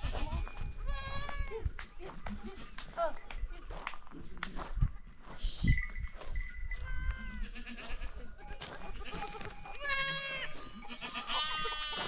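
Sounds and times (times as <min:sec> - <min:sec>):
goats bleating: 0:00.0 - 0:01.6, 0:06.8 - 0:12.0.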